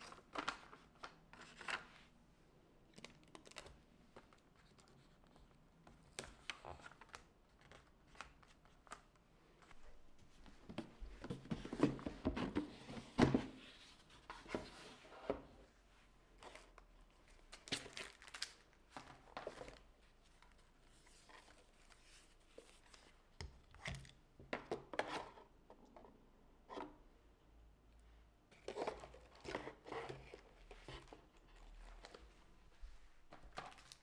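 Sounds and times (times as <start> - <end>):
paper rustling and crinkling: 16.4 - 19.8, 28.6 - 34.0.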